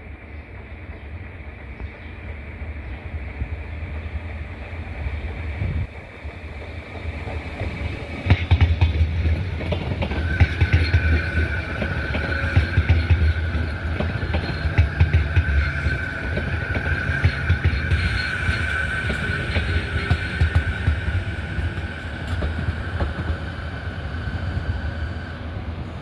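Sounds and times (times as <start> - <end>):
train rumbling on track: 0.0 - 26.0
wheels clacking and knocking: 7.0 - 23.4.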